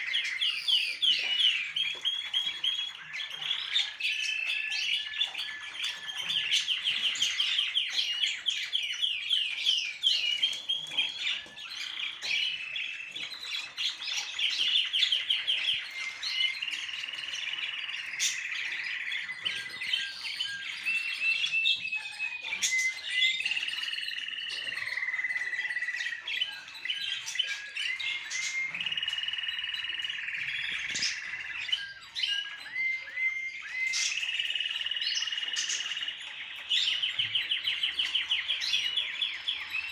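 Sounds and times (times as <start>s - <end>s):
bird whistled notes: 15.3s - 39.9s.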